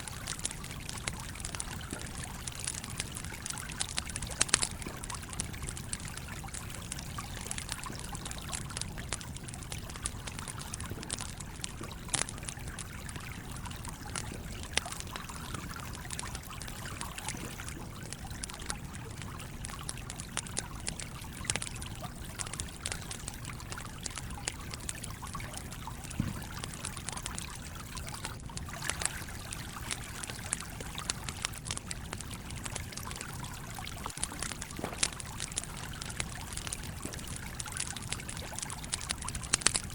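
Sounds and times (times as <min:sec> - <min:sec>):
campfire crackling: 0:00.0 - 0:39.9
stream running: 0:00.0 - 0:39.9.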